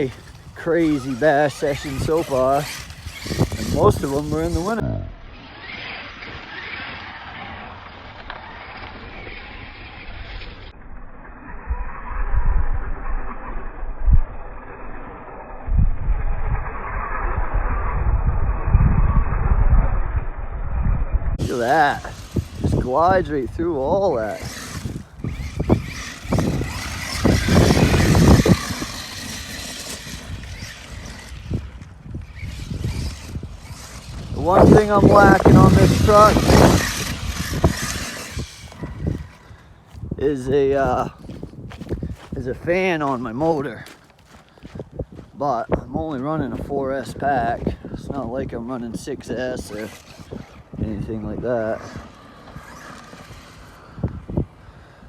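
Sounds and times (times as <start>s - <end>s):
tyres rushing over dirt: 0.0s - 10.7s, 21.4s - 45.9s, 49.2s - 54.5s
electric motor whining: 0.0s - 40.5s, 49.4s - 54.7s.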